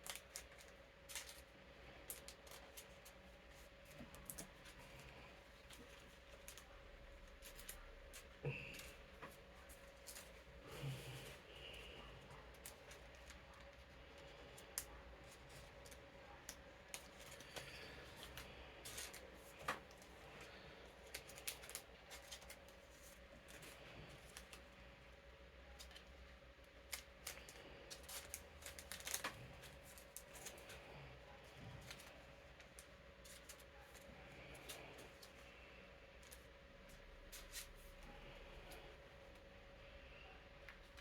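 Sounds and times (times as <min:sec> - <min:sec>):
playing cards clicking and rustling: 0:00.0 - 0:10.4, 0:12.4 - 0:24.6, 0:26.8 - 0:30.9, 0:36.2 - 0:37.9.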